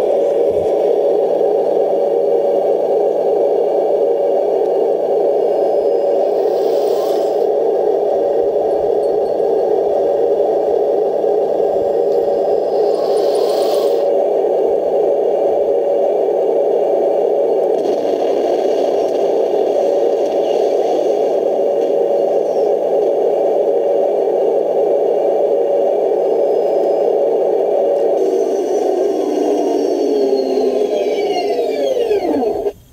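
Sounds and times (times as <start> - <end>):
electric motor whirring: 28.2 - 32.8.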